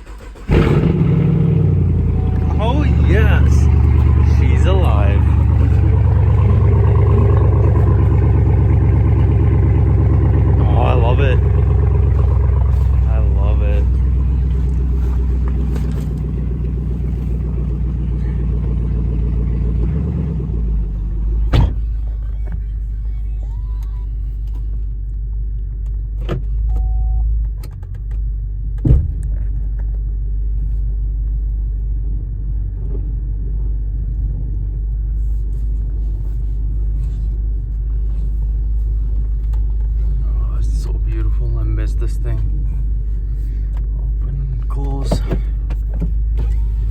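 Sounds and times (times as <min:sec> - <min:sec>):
car engine idling: 0:00.0 - 0:26.8, 0:27.8 - 0:46.9.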